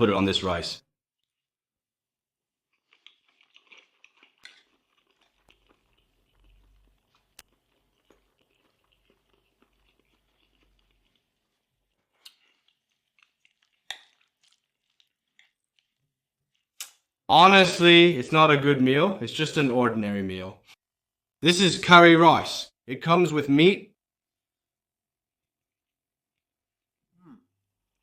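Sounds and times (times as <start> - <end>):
close-up chewing: 2.7 - 16.9.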